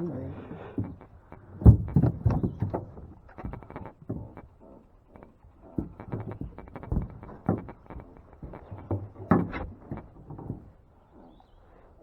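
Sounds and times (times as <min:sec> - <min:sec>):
fishing gear knocking and rattling: 0:00.8 - 0:04.5, 0:05.1 - 0:10.7.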